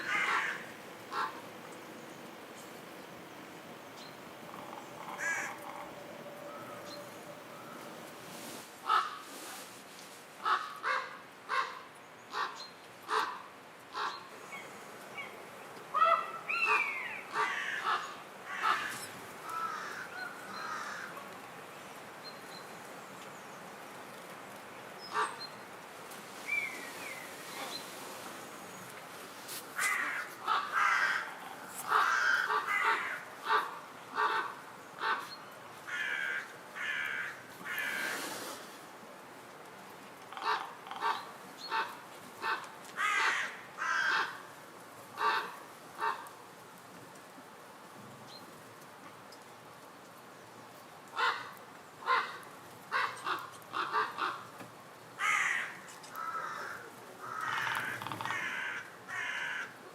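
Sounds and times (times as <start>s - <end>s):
bird harsh caw-like calls: 0.0s - 1.4s, 4.5s - 7.8s, 16.0s - 21.2s, 29.8s - 35.3s, 35.9s - 38.2s, 40.3s - 44.4s, 51.2s - 54.5s, 55.2s - 59.8s.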